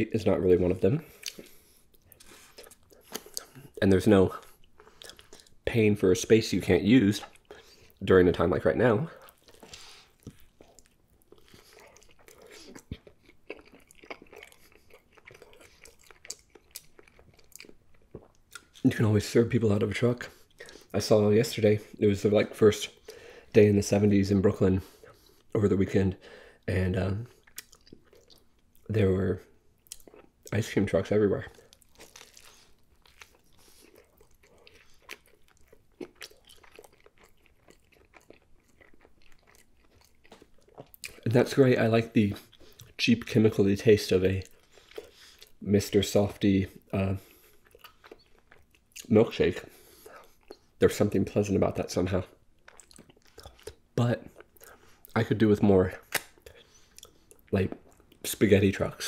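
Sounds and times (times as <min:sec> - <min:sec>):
person chewing food: 0:01.0 - 0:03.8, 0:04.4 - 0:05.6, 0:09.2 - 0:18.8, 0:27.3 - 0:28.9, 0:29.8 - 0:30.5, 0:31.4 - 0:41.2, 0:42.3 - 0:43.0, 0:44.4 - 0:45.6, 0:46.8 - 0:50.8, 0:52.5 - 0:55.2, 0:56.0 - 0:58.3
small crunches: 0:31.6 - 0:41.2.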